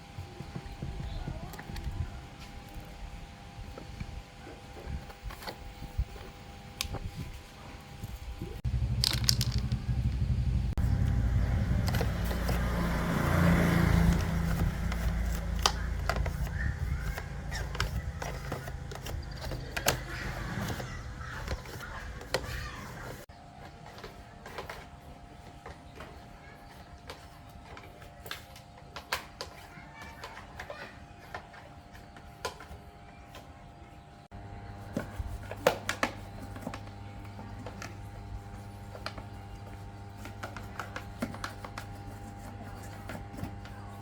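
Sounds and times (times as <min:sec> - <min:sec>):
low motor hum: 0:00.0 - 0:23.2
tool handling clicks: 0:08.8 - 0:10.2.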